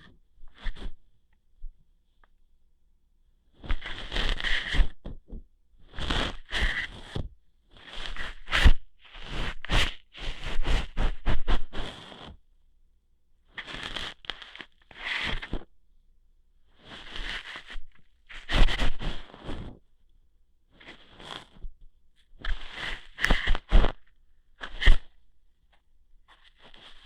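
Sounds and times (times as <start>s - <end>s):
scratchy scraping and rustling: 3.6s - 5.0s, 5.9s - 7.2s, 7.8s - 12.4s, 13.6s - 15.7s, 16.8s - 19.8s, 20.8s - 21.7s, 22.3s - 25.3s, 26.3s - 27.0s.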